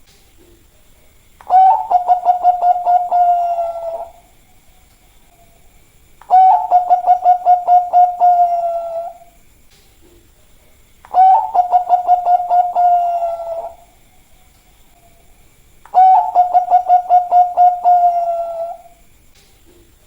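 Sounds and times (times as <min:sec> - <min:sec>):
dove cooing: 0:01.4 - 0:04.4, 0:06.2 - 0:09.4, 0:11.1 - 0:14.0, 0:15.9 - 0:19.0.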